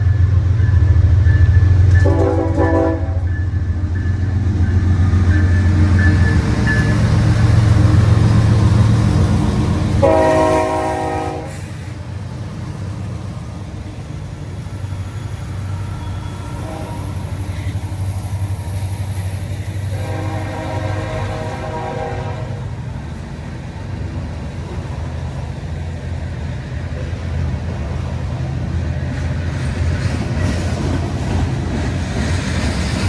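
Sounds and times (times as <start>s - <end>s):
diesel locomotive rumble: 0.0s - 33.0s
multi-tone locomotive horn: 0.6s - 8.0s, 9.4s - 11.9s, 15.4s - 18.0s, 19.9s - 22.8s.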